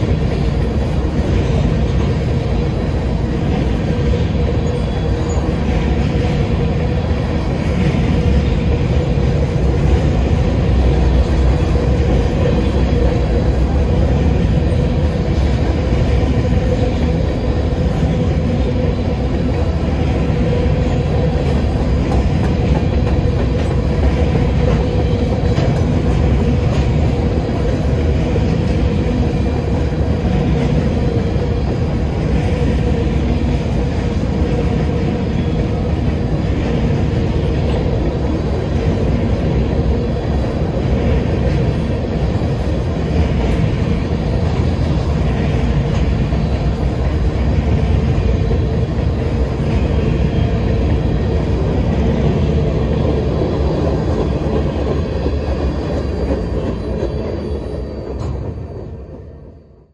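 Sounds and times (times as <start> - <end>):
steel wheels rumbling on rail: 0.0 - 59.9
faint clickety-clack: 21.3 - 28.8.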